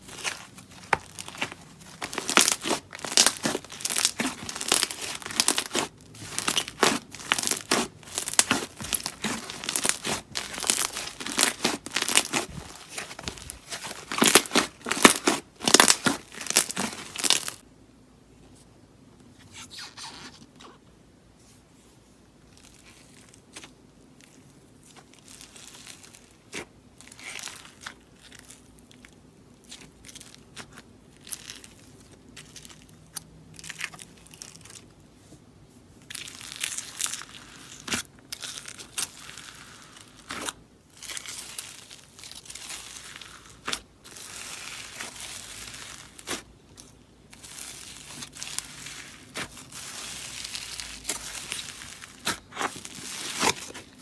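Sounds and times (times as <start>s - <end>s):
slime crackling and popping: 0.0s - 17.6s, 36.1s - 54.0s.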